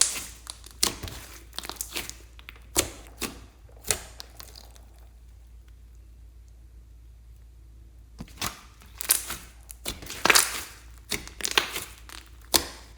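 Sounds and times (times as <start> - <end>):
slime crackling and popping: 0.0 - 6.1, 8.2 - 12.9.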